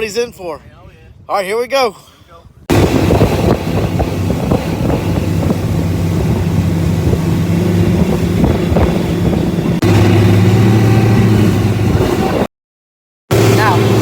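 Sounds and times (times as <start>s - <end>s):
wind buffeting microphone: 0.0s - 12.5s
motorboat engine running: 2.7s - 12.5s, 13.3s - 14.0s.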